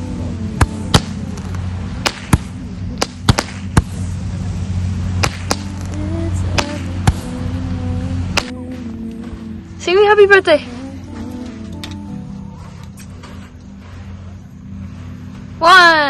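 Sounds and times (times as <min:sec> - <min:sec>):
steady low hum: 0:00.0 - 0:16.0
sharp pops: 0:00.6 - 0:04.0, 0:05.2 - 0:07.3, 0:08.3 - 0:08.6.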